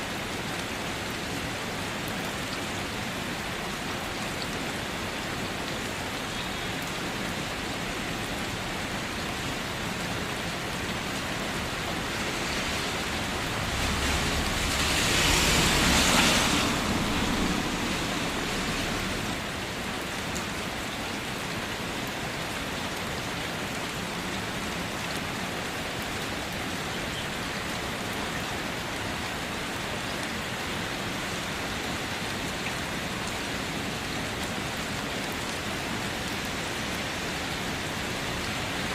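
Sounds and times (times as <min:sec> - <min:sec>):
rain falling on a car: 0:00.0 - 0:38.9
low rumble: 0:12.4 - 0:19.4.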